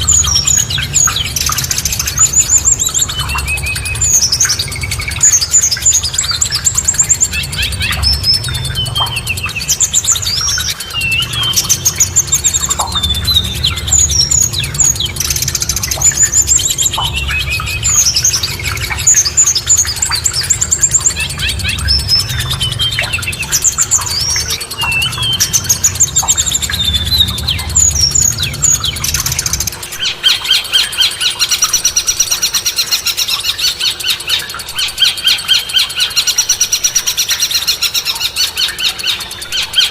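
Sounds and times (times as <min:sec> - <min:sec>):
low background rumble: 0:00.0 - 0:30.3
bird song of rapid notes: 0:00.0 - 0:39.9.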